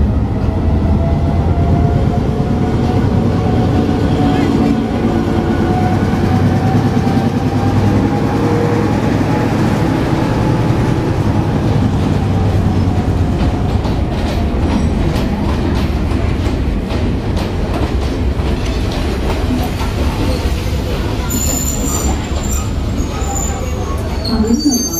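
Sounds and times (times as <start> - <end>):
train wheels clicking over rail joints: 11.7 - 23.0.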